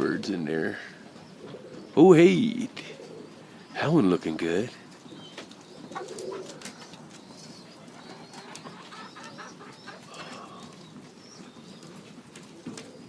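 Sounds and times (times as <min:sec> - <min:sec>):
birds chirping and trilling: 0:00.0 - 0:13.0
pigeon cooing: 0:00.6 - 0:13.0.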